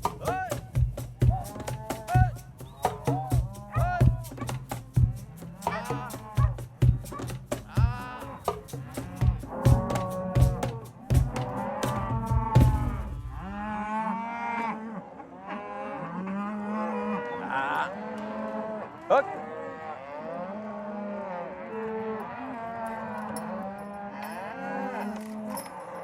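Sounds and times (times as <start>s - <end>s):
cattle mooing: 5.2s - 6.6s, 7.7s - 26.0s
low rumble: 12.1s - 14.1s.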